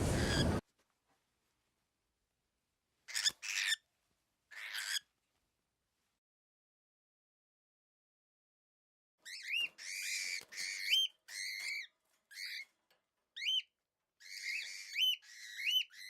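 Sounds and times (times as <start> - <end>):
bird-like whistled calls: 0.0 - 0.6.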